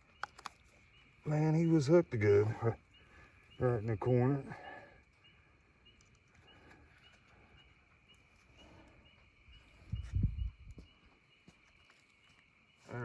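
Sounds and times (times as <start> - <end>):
night insects chirping: 0.0 - 13.0
low thumping near microphone: 9.9 - 10.9.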